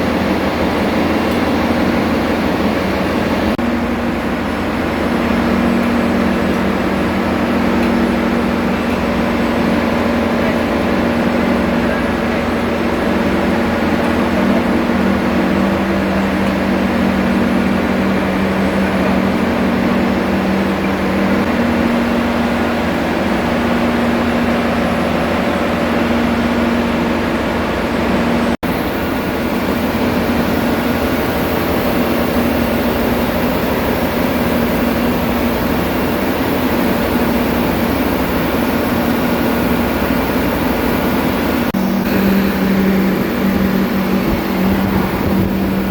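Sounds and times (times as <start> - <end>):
engine room machinery drone: 0.0 - 45.9.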